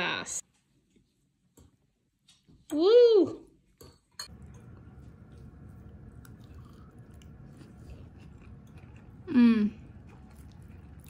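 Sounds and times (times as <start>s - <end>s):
person chewing food: 4.3s - 11.0s.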